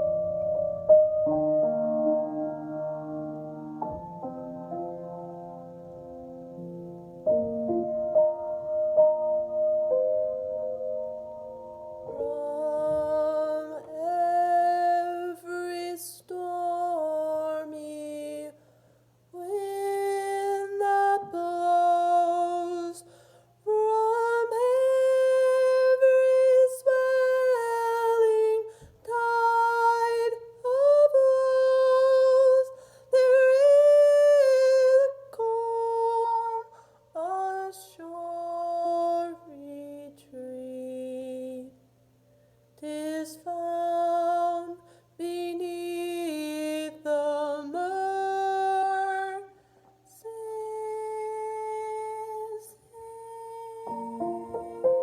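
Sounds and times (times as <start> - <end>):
woman singing a hymn unaccompanied: 12.1 - 42.0, 42.8 - 55.0.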